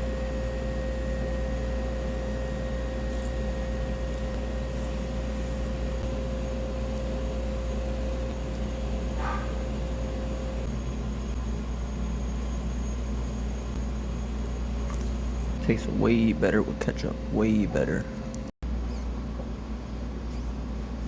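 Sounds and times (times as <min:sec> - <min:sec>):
machine hum with high whine: 0:00.0 - 0:21.0
short squeak: 0:18.8 - 0:19.3, 0:20.2 - 0:21.0.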